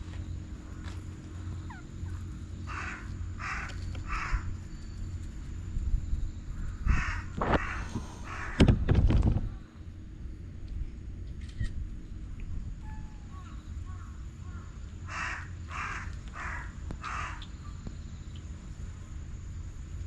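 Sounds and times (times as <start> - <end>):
harsh animal calls: 1.6 - 4.5, 6.8 - 8.8.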